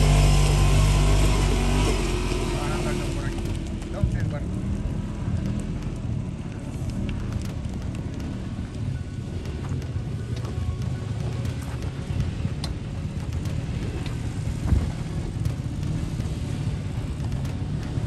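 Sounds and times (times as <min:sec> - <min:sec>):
car engine at low revs: 0:00.0 - 0:18.0
wind on microphone: 0:00.0 - 0:18.0
sharp clicks: 0:03.3 - 0:14.2.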